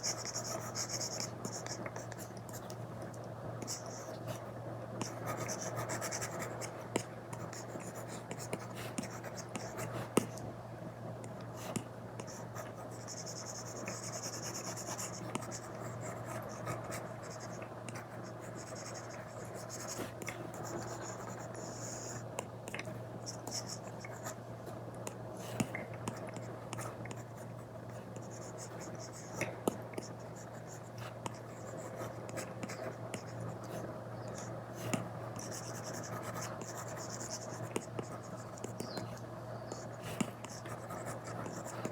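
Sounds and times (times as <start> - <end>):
faint low hum: 0.0 - 41.9.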